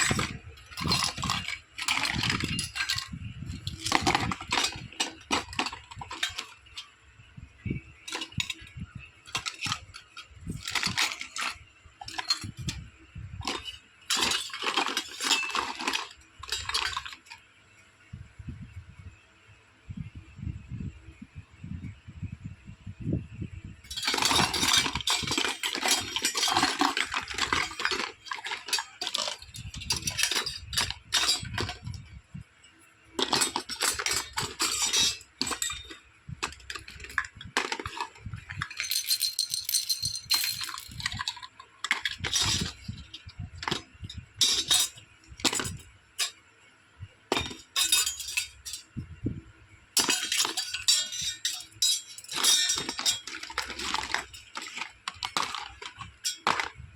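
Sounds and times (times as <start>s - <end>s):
plastic toy pieces clicking: 33.2s - 42.8s, 50.0s - 56.7s.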